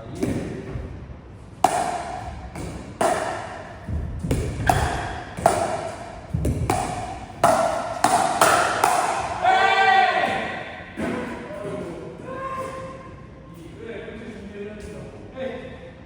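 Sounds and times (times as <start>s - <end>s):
pickleball paddles hitting ball: 1.6s - 9.4s.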